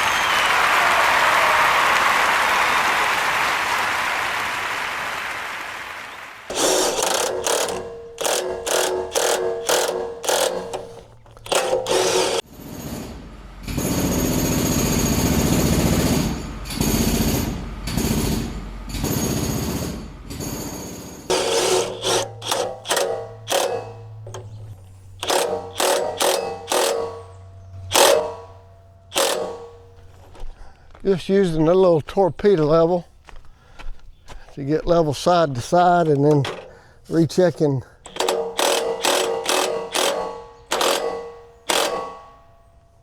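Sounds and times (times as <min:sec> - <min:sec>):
quick ringing metallic clacks: 0:06.5 - 0:12.4, 0:21.3 - 0:30.4, 0:36.0 - 0:43.0
steady mechanical whir: 0:06.5 - 0:12.5, 0:21.3 - 0:30.2, 0:38.0 - 0:42.6.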